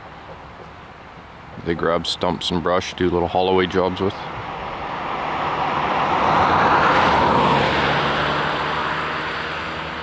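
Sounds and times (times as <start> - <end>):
vehicle passing by: 4.0 - 10.0.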